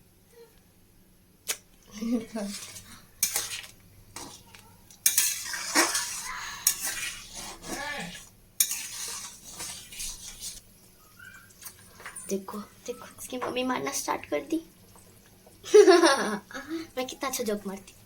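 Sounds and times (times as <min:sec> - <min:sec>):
spoon scraping pan: 0:02.2 - 0:10.6
metal spoon clinking against pan: 0:05.0 - 0:05.6.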